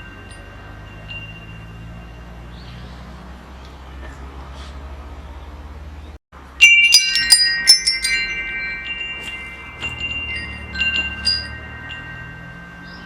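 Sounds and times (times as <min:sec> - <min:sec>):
metal wind chimes clanging: 0:00.0 - 0:03.5, 0:06.4 - 0:13.0.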